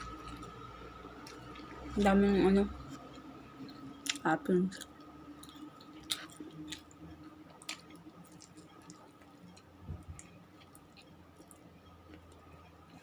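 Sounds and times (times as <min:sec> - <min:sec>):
faint hum: 0:00.0 - 0:13.0
person chewing: 0:04.8 - 0:13.0.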